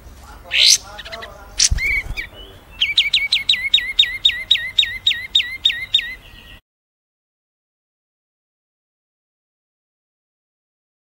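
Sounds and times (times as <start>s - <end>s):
songbird calling sharp notes: 0.0s - 6.6s.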